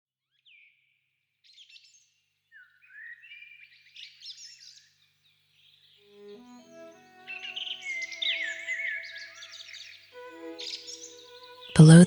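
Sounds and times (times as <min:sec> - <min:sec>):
birds chirping and trilling: 0:02.5 - 0:11.7.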